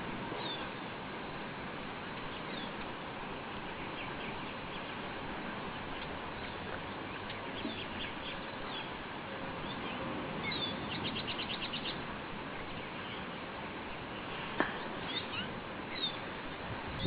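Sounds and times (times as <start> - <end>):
steady background noise: 0.0 - 17.0
small bird chirping: 9.6 - 12.0, 15.0 - 16.2.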